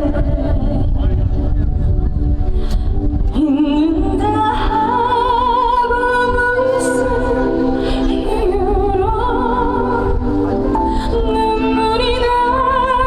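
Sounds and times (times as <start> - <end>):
backing track: 0.0 - 13.0
woman singing ballad: 3.3 - 13.0.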